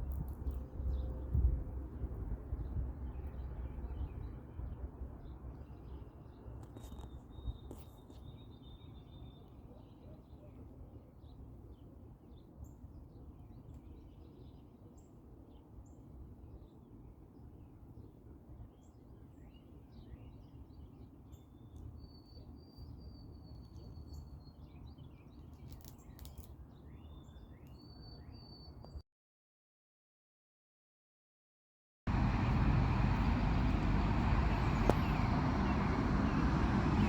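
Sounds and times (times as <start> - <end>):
small birds chirping: 18.7 - 29.0, 32.1 - 37.0
faint low rumble: 32.1 - 37.0.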